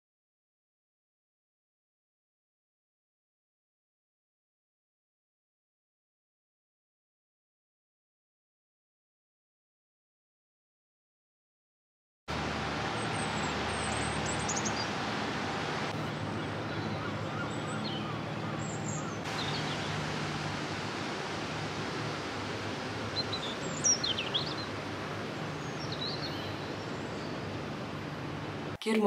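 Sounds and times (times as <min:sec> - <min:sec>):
low hum and hiss: 0:12.3 - 0:29.0
small birds chirping: 0:12.8 - 0:28.8.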